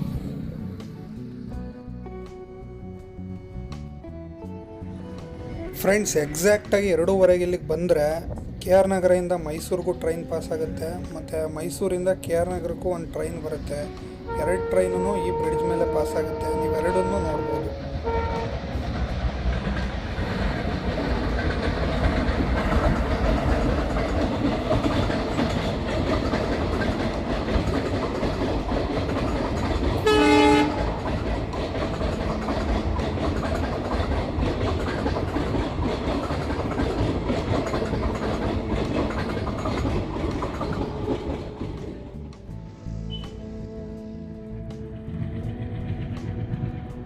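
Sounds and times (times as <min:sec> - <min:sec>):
train horn blast: 0:13.8 - 0:19.1, 0:29.8 - 0:33.0
train wheels on rails: 0:14.8 - 0:43.5, 0:44.9 - 0:47.0.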